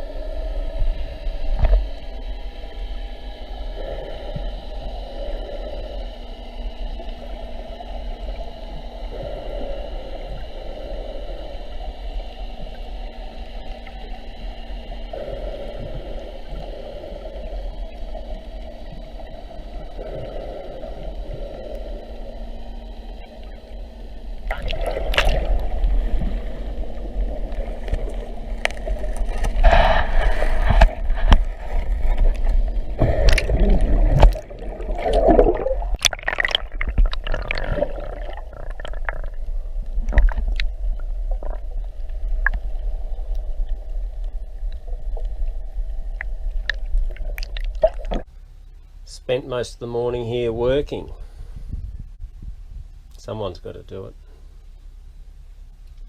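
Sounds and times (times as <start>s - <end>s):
uneven low rumble: 0.0s - 56.0s.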